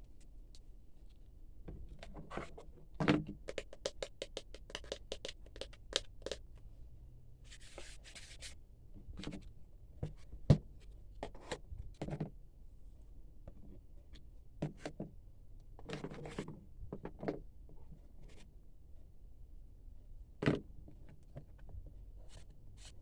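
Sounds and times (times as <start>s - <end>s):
small plastic clicks and taps: 3.2s - 6.4s.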